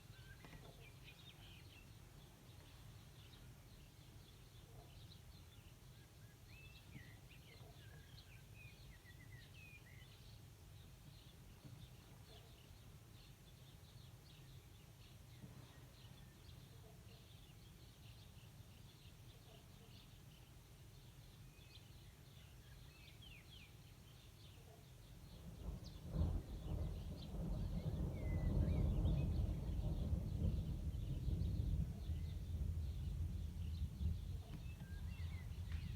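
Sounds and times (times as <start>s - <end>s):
faint birds chirping: 0.0s - 35.9s.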